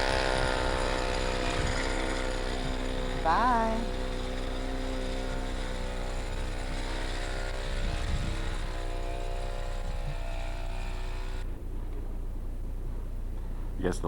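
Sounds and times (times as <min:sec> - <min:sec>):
snowblower engine running: 0:00.0 - 0:11.6
low steady hum: 0:00.0 - 0:14.0.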